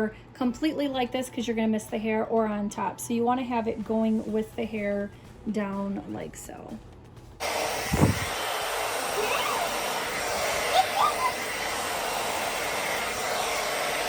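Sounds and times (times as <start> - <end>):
hair dryer blowing: 7.4 - 14.0
thump: 7.9 - 8.3.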